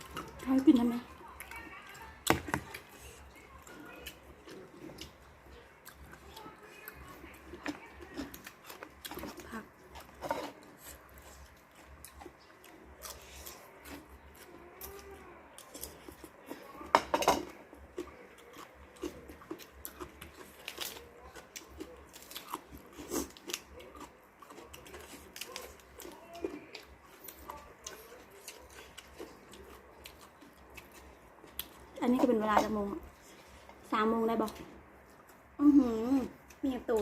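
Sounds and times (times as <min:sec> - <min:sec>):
person chewing crunchy food: 0:00.0 - 0:37.0.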